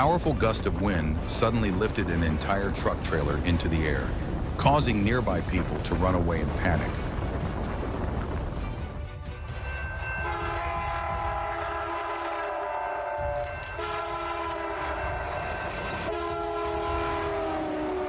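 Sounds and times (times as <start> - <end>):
low rumble: 0.0 - 11.5
train horn blasts: 10.0 - 18.0.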